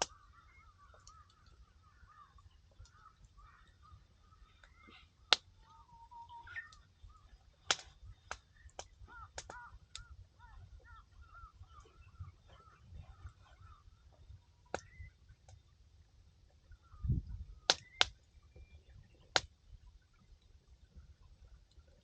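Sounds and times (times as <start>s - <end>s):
wood fire crackling and popping: 0.0s - 0.2s, 7.5s - 10.1s, 14.7s - 15.6s, 17.6s - 18.2s
faint bird calls: 0.0s - 15.8s, 16.5s - 22.0s.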